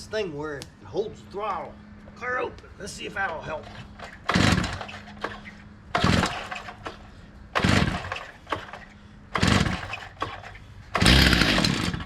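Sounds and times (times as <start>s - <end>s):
recoil starter pulls: 3.2s - 12.0s
saw engine cranking: 3.4s - 12.0s.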